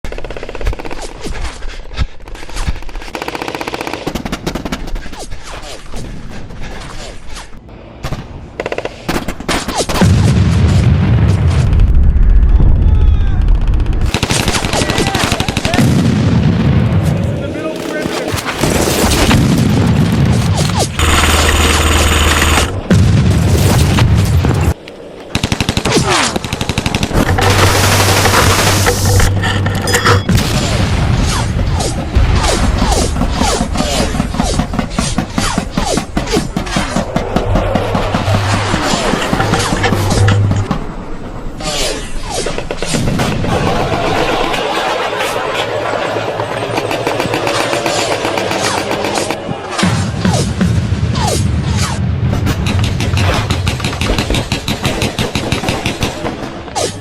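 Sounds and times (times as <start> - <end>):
airsoft guns firing bursts: 2.8 - 5.0, 13.6 - 15.8, 46.6 - 49.4.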